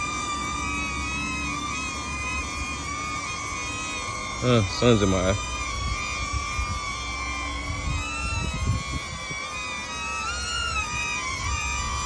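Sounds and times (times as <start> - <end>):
drone propellers whining: 0.0 - 12.0
wind rumble on microphone: 5.6 - 9.6.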